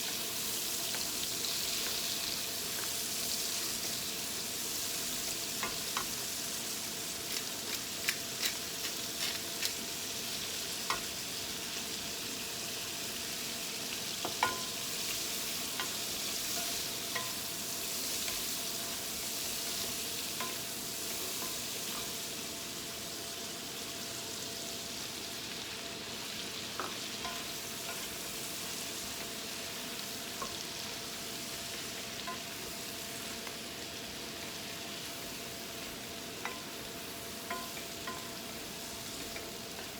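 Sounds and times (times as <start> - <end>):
food sizzling in a pan: 0.0 - 39.9
utensil clicking against pan: 7.2 - 9.8.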